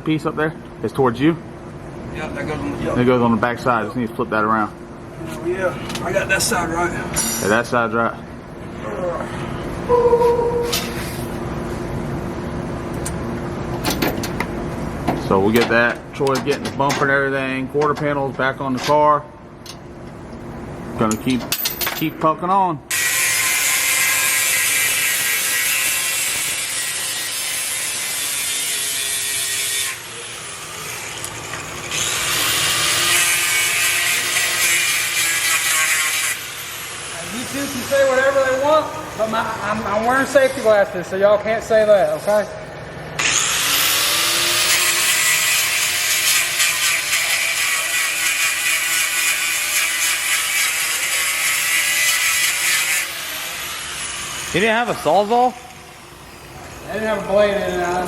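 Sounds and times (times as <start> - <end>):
power tool cutting with whine: 22.9 - 37.5, 43.2 - 54.6.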